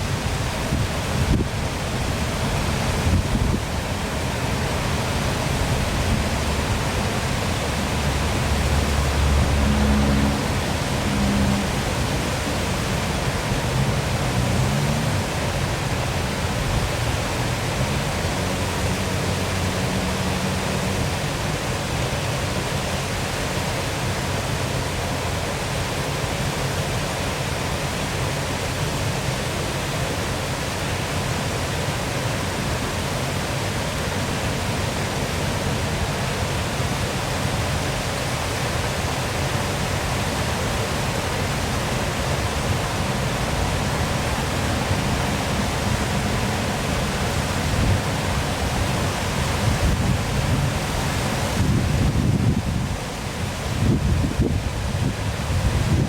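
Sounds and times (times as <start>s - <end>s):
waterfall rushing: 0.0s - 56.0s
low wavering hum: 5.1s - 13.8s.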